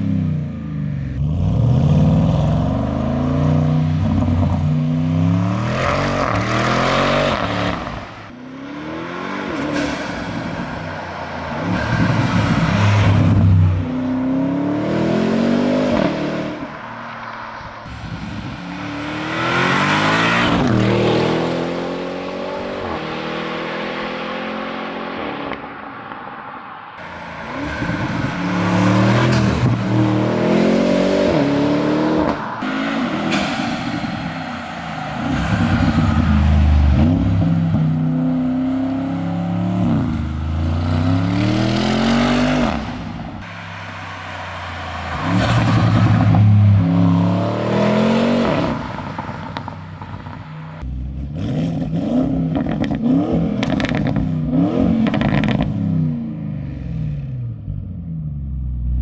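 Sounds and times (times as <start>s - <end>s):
car engine accelerating hard: 50.8s - 59.0s.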